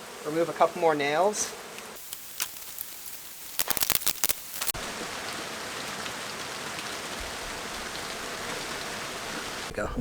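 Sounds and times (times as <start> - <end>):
steady hiss: 0.0 - 9.8.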